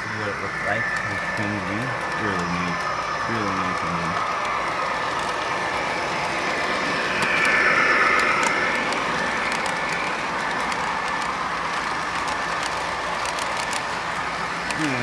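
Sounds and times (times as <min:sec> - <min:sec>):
model train diesel engine sound: 0:00.0 - 0:15.0
model train wheels rolling on track: 0:00.0 - 0:15.0
small clicks: 0:03.8 - 0:15.0.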